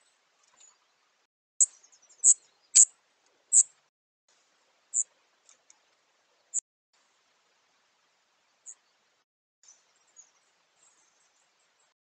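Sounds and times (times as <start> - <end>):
songbird chirping: 0.0 - 3.8, 8.1 - 12.0.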